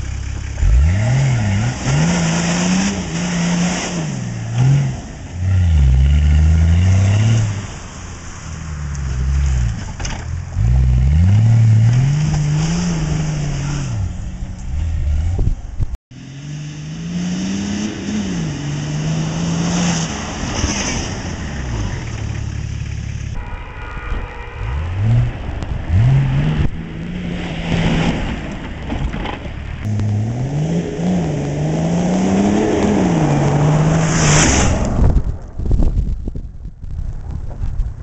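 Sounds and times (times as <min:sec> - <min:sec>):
engine revving under load: 0:00.6 - 0:08.0, 0:10.5 - 0:23.4, 0:24.6 - 0:28.4, 0:29.8 - 0:35.2.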